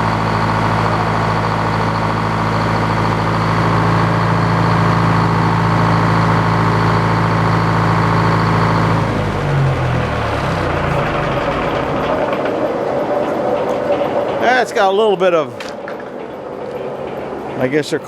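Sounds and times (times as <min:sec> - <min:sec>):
high whine: 0:00.0 - 0:17.7
sawmill engine running: 0:00.0 - 0:18.0.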